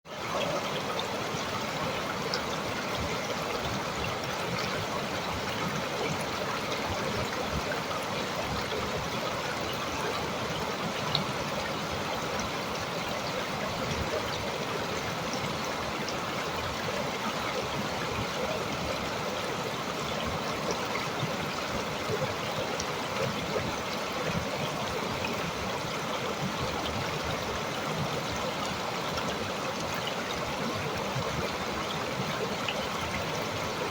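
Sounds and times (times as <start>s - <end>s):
stream water rushing: 0.1s - 33.9s.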